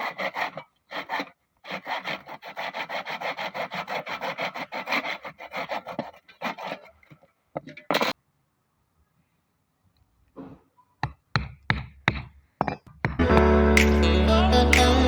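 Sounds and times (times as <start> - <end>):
hand tool rasping wood: 0.0 - 7.2.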